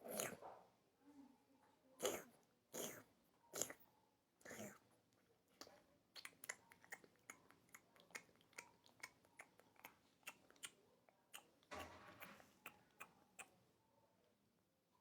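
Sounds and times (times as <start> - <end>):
cat licking its fur: 2.0 - 3.0, 3.6 - 3.8, 4.4 - 4.8.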